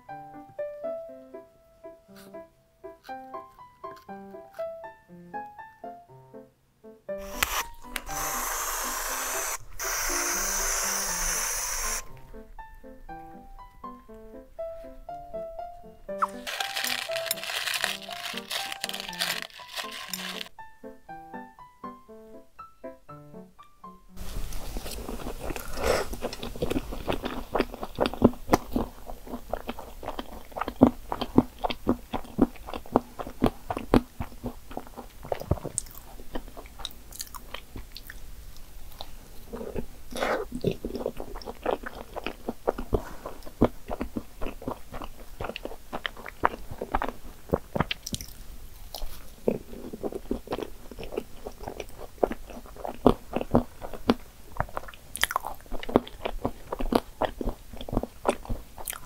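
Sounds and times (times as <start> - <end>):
wet chewing mouth sounds: 24.5 - 38.2, 38.9 - 59.0.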